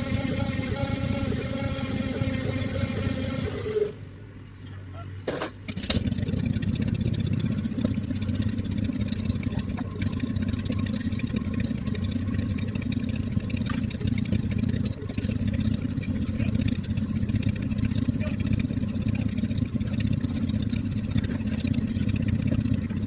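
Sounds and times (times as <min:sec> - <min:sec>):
tractor engine chugging: 0:00.0 - 0:23.0.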